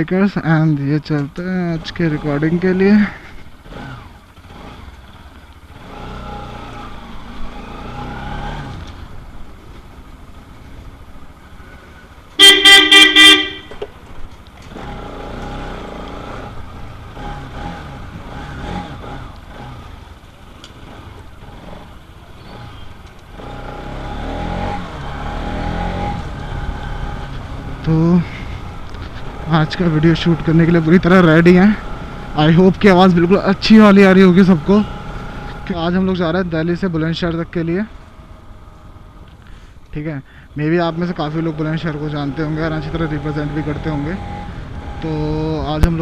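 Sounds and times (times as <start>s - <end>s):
road traffic engines: 0.0s - 46.0s
vehicle horn toots: 12.4s - 13.9s.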